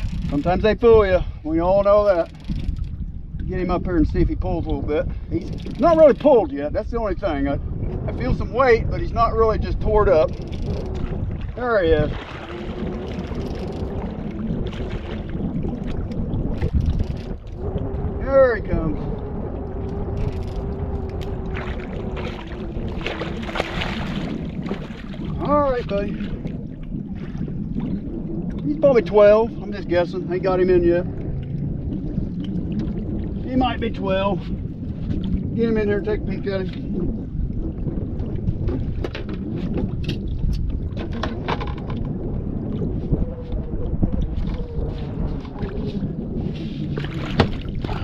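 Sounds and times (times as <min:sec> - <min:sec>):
water noise: 0:00.0 - 0:48.0
wind rumble on microphone: 0:00.0 - 0:48.0.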